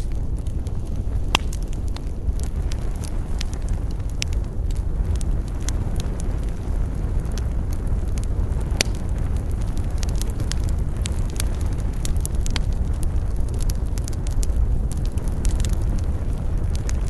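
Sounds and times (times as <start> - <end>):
fire crackling in fireplace: 0.0 - 17.0.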